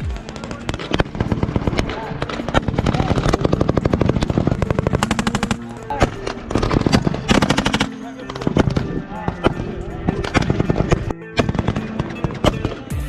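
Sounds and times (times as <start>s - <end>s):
automatic gunfire bursts: 6.5s - 8.8s.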